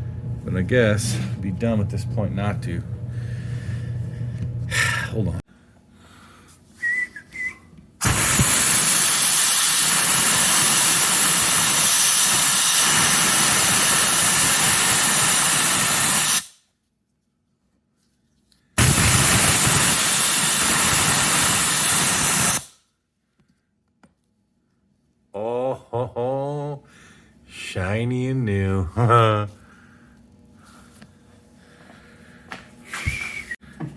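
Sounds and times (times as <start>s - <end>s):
spark plug cleaner blasting hiss: 8.0s - 16.6s, 18.8s - 22.8s.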